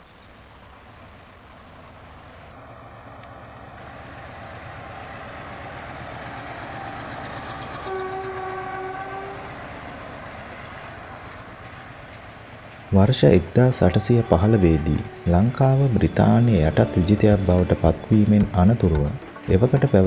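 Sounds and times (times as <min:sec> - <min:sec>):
train running: 0:00.0 - 0:20.0
train horn: 0:06.3 - 0:11.8, 0:13.0 - 0:20.0
faint horn-like tone: 0:07.9 - 0:09.6, 0:13.0 - 0:20.0.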